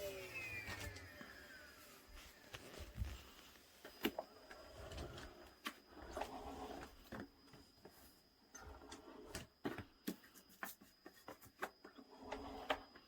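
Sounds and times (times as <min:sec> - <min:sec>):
faint high-pitched tone: 0:00.0 - 0:05.2.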